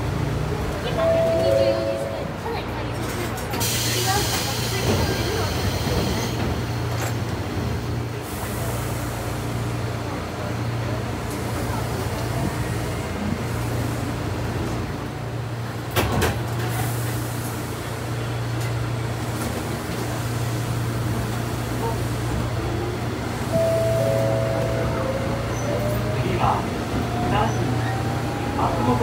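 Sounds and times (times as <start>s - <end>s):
train low hum: 0.0s - 29.0s.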